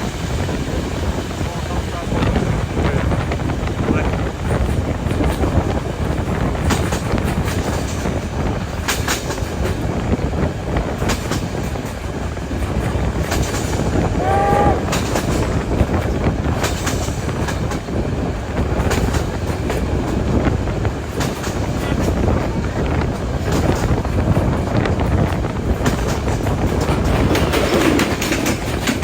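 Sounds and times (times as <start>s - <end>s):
steam train rumbling: 0.0s - 29.0s
wheels clicking over rail joints: 0.0s - 29.0s
short pitched train call: 14.0s - 15.3s.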